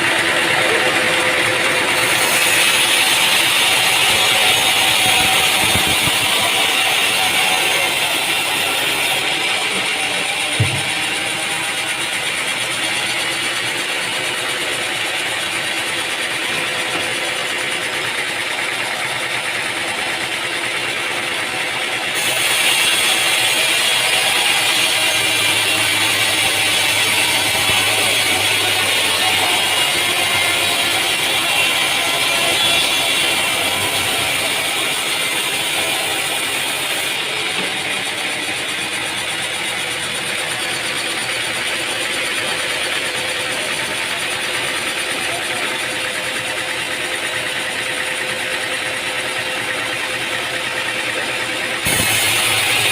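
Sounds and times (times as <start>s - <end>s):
machinery running: 0.0s - 52.9s.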